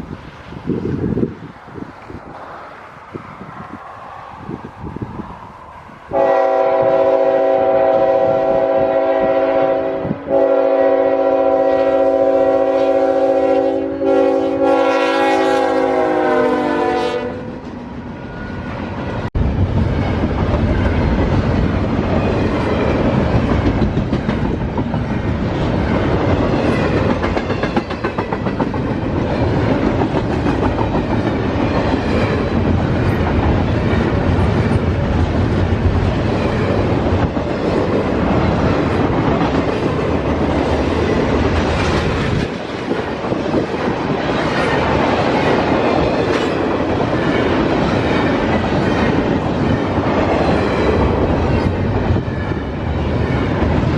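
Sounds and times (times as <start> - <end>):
train rushing past: 0.0 - 53.9
locomotive air horn blasts: 6.1 - 17.6
rumbling wheels clacking: 19.4 - 52.3.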